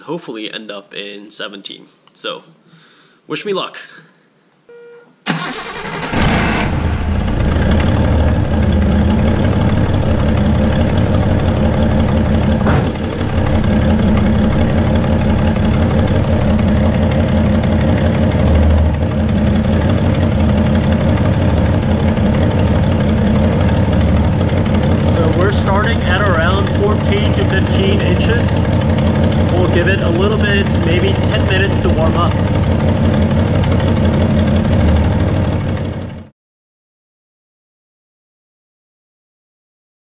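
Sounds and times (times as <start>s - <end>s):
car engine starting and idling: 5.3s - 36.3s.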